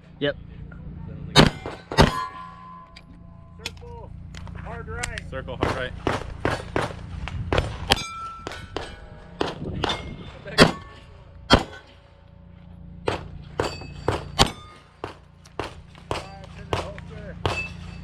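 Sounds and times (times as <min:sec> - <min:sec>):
pistol shots: 0:01.4 - 0:02.3, 0:05.6 - 0:10.9, 0:11.5 - 0:11.9, 0:13.1 - 0:17.9
steel plates clanging: 0:01.4 - 0:03.6, 0:07.9 - 0:12.2, 0:13.2 - 0:15.0.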